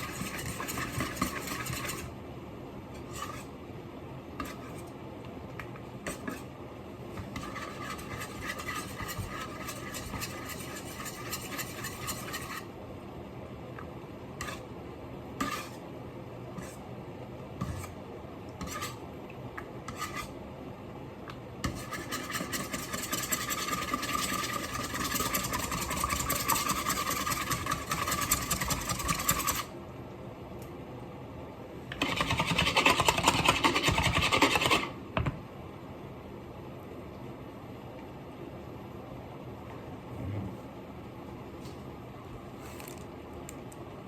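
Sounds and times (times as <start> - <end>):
rapid rasping and scraping: 0.0 - 2.1, 7.3 - 12.7, 21.7 - 29.7, 31.9 - 34.9.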